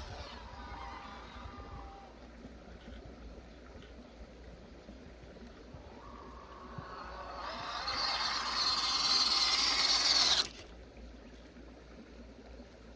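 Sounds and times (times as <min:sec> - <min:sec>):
electric motor and gearbox whining: 0:07.0 - 0:10.6.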